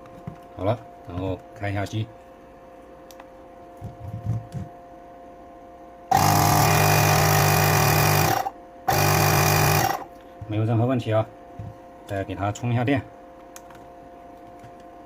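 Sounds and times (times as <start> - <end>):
inflator pump compressor buzzing: 6.1 - 10.2.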